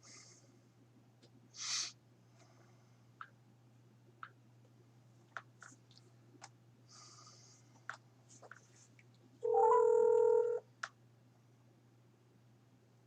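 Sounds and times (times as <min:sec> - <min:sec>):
phone ringing tone: 0:09.4 - 0:10.6.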